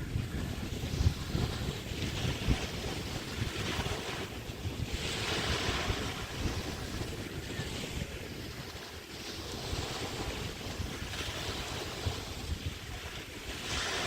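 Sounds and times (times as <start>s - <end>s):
waves breaking on beach: 0.0s - 14.0s
wind buffeting microphone: 0.0s - 14.0s.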